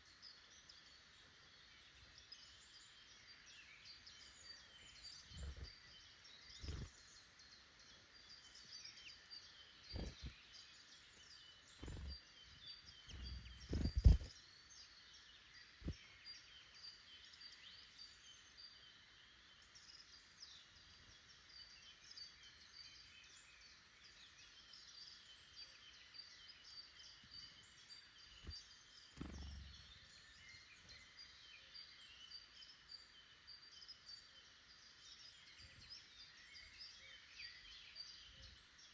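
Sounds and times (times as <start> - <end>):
small birds chirping and trilling: 0.0 - 38.9
dull low thumps: 13.1 - 14.3.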